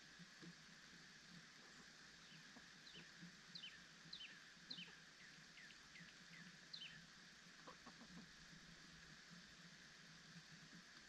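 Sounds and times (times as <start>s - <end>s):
faint bird chirps: 1.7s - 8.2s.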